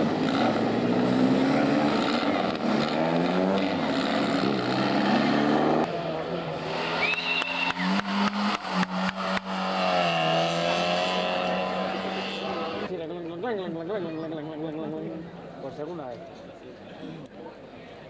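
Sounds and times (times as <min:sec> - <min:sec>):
car engine running on course: 0:00.0 - 0:12.9
car engines revving and idling: 0:00.0 - 0:15.8.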